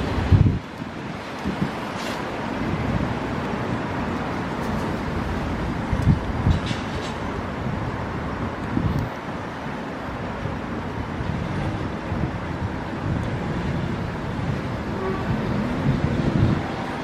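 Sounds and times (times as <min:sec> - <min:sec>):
wind on microphone: 0:00.0 - 0:09.2, 0:10.2 - 0:17.0
city traffic rumble: 0:00.0 - 0:17.0.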